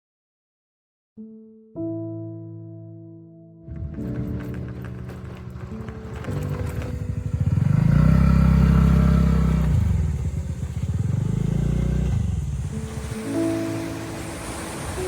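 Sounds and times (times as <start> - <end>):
motor scooter engine revving: 4.0 - 15.0.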